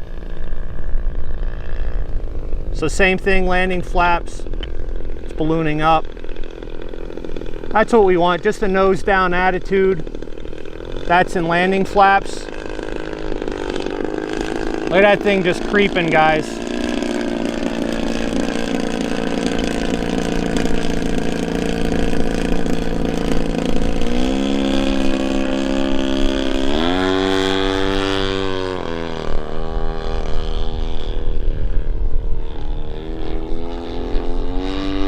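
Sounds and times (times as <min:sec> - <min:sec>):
model airplane engine: 0:00.0 - 0:35.0
wind rumbling on microphone: 0:18.3 - 0:35.0.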